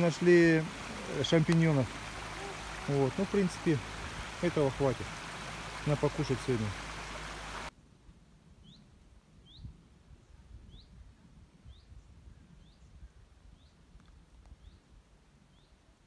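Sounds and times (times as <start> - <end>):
bird chirping: 8.6 - 9.7.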